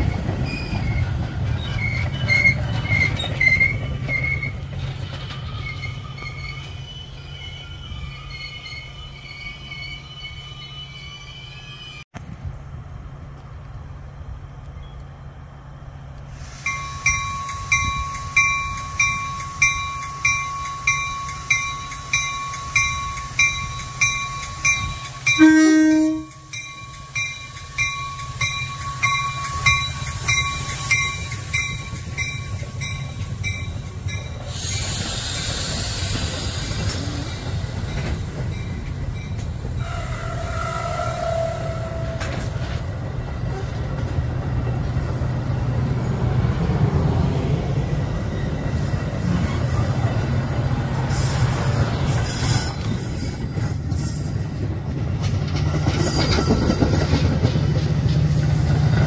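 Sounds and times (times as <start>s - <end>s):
train rumble: 0.0s - 10.6s, 11.3s - 59.0s
train bell ringing: 16.6s - 35.0s, 37.1s - 42.1s, 55.9s - 57.2s
train horn blast: 25.2s - 26.5s, 39.8s - 42.6s.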